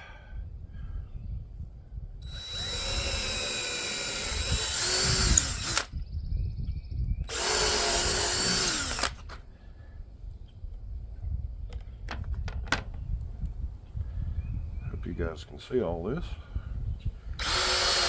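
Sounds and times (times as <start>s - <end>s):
wind rumble on microphone: 0.0s - 18.0s
power drill running: 2.2s - 5.9s, 7.3s - 9.4s, 17.4s - 18.0s.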